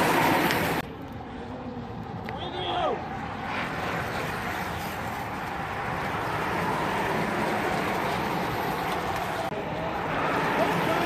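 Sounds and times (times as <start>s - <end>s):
bicycles rolling past: 0.0s - 11.0s.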